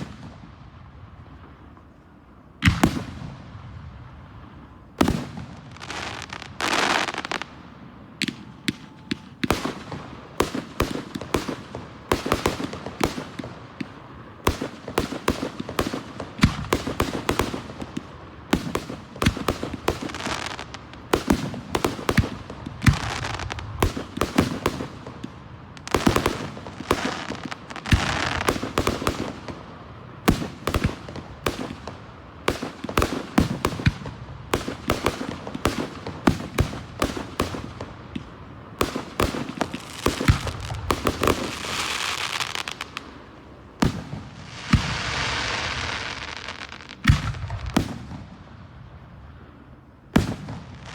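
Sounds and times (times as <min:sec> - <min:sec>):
fireworks bangs and crackles: 0:00.0 - 0:50.9
fireworks hissing: 0:05.7 - 0:07.5, 0:25.8 - 0:29.0, 0:39.5 - 0:47.0.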